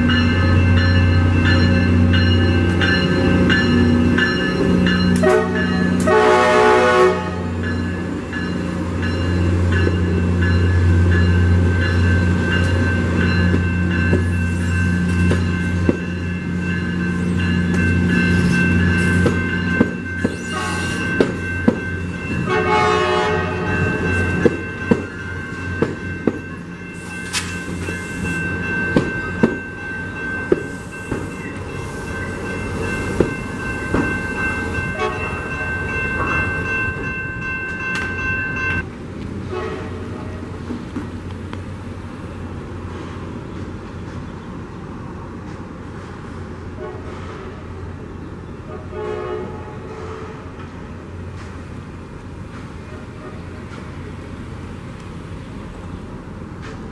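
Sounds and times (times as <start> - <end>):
train horn: 5.2 - 7.6, 22.4 - 24.0, 34.9 - 35.3, 39.5 - 40.3, 46.8 - 47.6, 48.7 - 50.5
train wheels clicking over rail joints: 7.5 - 22.4, 23.8 - 39.4, 50.6 - 54.3
high-pitched ringing tone: 7.6 - 22.5.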